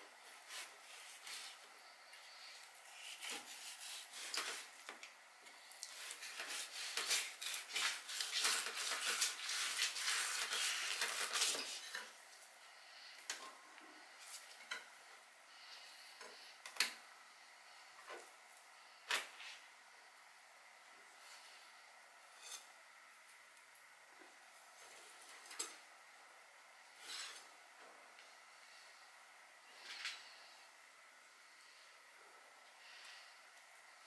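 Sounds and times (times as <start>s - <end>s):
knife scraping on cutting board: 2.9s - 4.7s, 5.9s - 12.1s, 22.4s - 22.7s, 27.0s - 27.5s.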